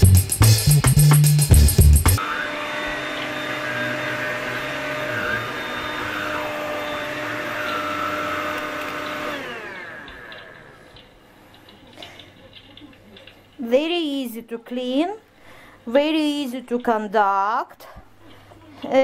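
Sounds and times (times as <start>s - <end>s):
vacuum cleaner whine spinning down: 2.2s - 10.8s.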